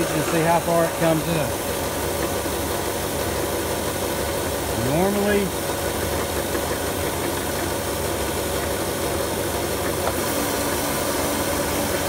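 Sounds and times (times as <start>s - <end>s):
floor machine motors humming: 0.0s - 12.0s.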